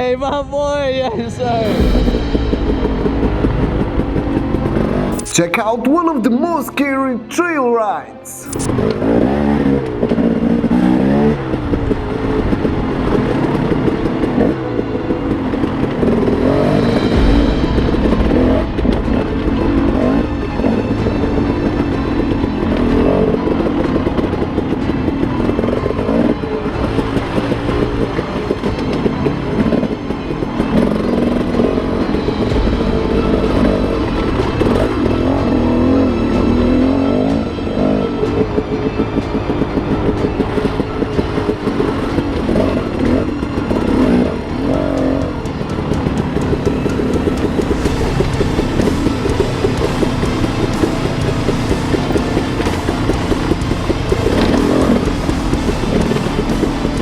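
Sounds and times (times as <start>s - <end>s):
dirt bike engine revving: 39.7s - 57.0s.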